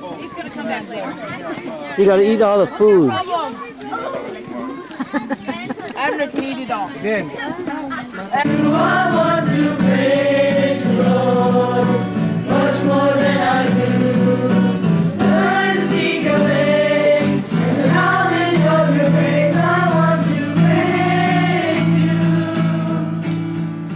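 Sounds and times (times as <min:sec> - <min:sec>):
choir singing gospel song: 0:08.4 - 0:23.5.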